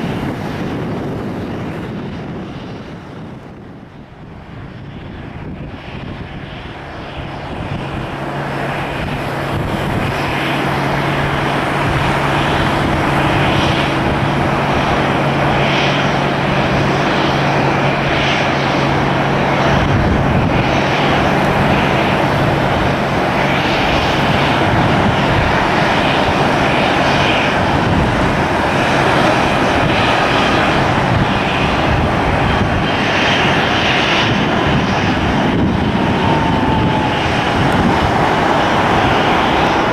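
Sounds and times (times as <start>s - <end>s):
airliner engines running: 0.0s - 39.9s.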